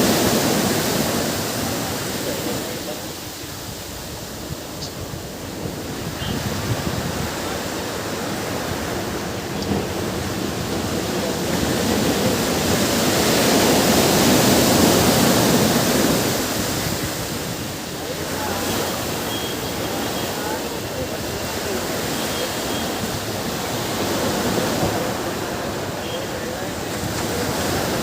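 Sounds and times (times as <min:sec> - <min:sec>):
ocean waves washing on beach: 0:00.0 - 0:28.0.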